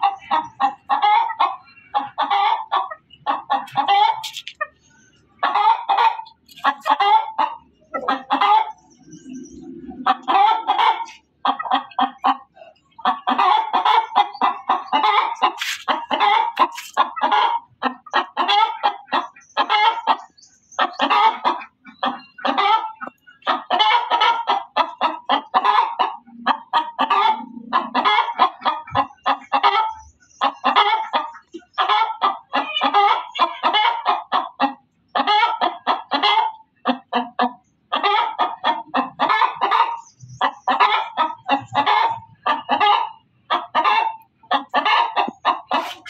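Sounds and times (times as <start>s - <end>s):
hen cackling: 0.0s - 9.2s, 9.8s - 46.0s.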